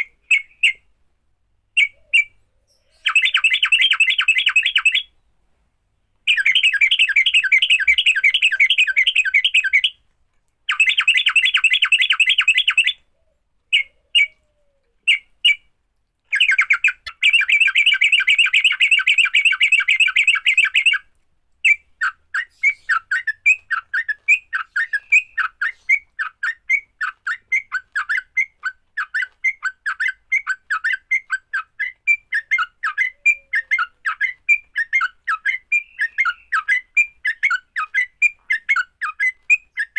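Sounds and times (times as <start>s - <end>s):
bird harsh chattering call: 6.3s - 9.9s.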